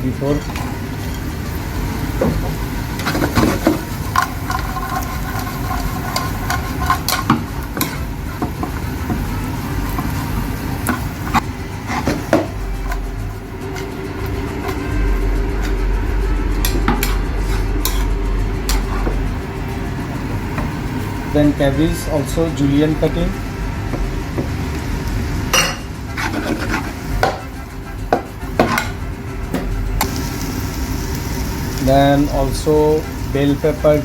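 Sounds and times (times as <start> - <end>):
food sizzling in pan: 0.0 - 34.0
steady low hum: 0.0 - 34.0
utensil scraping metal pan: 3.0 - 8.7, 9.9 - 19.2, 25.6 - 29.0.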